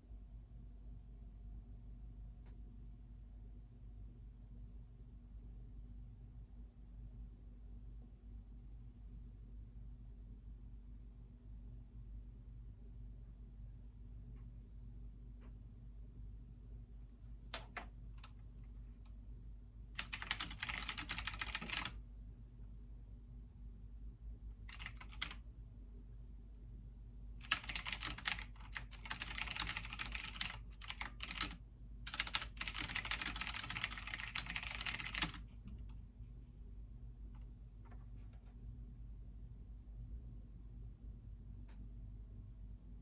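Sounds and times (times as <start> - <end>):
computer keyboard typing: 17.6 - 18.4, 20.0 - 22.0, 24.7 - 25.4, 27.4 - 35.5.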